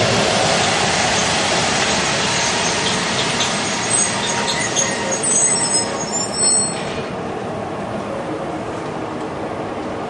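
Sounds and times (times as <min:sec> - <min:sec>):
coaches rumbling on rails: 0:00.0 - 0:10.0
high-pitched wheel squeals: 0:02.4 - 0:07.0.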